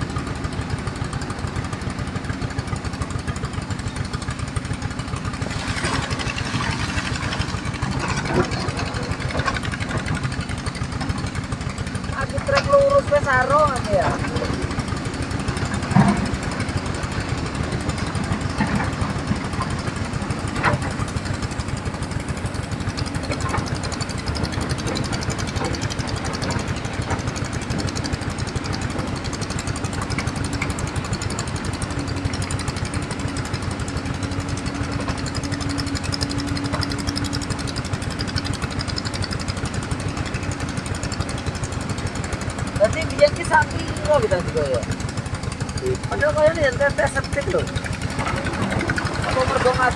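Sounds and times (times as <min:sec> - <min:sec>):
excavator diesel engine chugging: 0:00.0 - 0:49.9.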